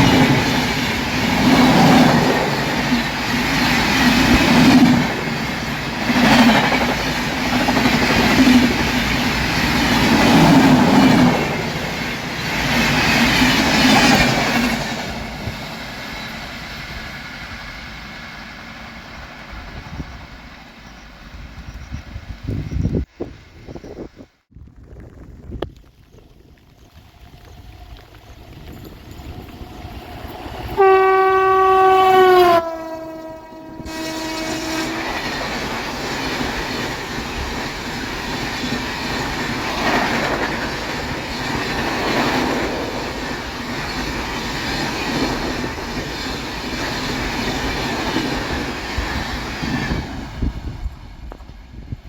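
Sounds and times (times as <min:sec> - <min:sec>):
train wheels rushing on track: 0:00.0 - 0:24.2, 0:25.0 - 0:52.0
train horn: 0:30.6 - 0:35.6.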